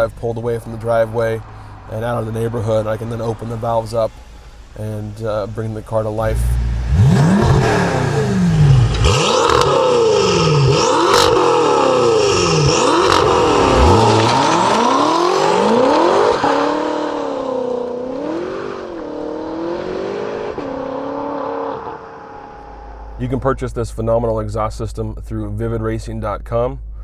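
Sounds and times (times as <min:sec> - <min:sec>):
exhaust cracks on upshifts: 0:00.0 - 0:19.6
car engine revving through gears: 0:00.6 - 0:23.2.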